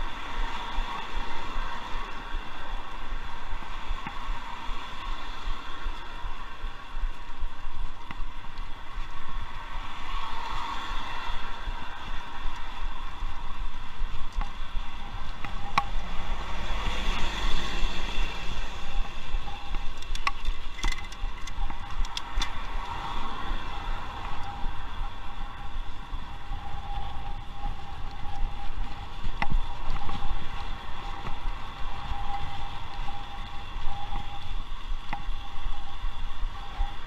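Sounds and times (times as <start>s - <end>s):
bicycle rattling over bumps: 0.0s - 37.0s
traffic passing: 0.0s - 37.0s
wind buffeting microphone: 0.0s - 37.0s.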